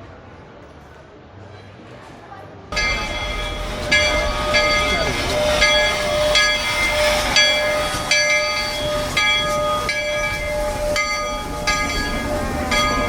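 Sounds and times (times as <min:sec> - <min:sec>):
locomotive bell ringing: 0:02.7 - 0:13.0
train running: 0:02.7 - 0:13.0.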